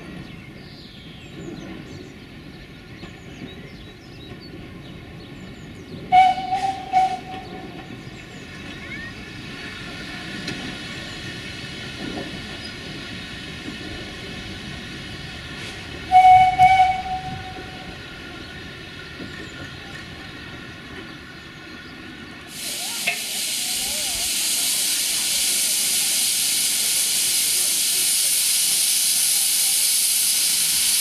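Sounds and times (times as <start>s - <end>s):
steam locomotive whistle: 6.1s - 7.8s, 16.1s - 17.9s
steam hissing from drain cocks: 22.5s - 31.0s.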